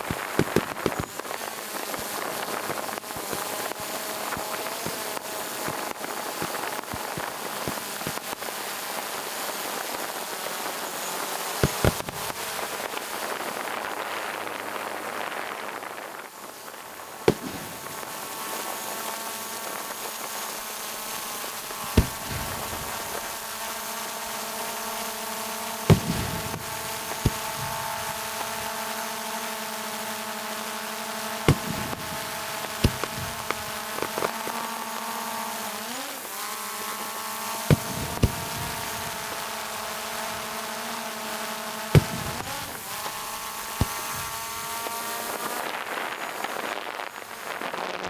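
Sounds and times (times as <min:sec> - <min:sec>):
fireworks bursting: 0:00.0 - 0:35.6, 0:37.3 - 0:48.0.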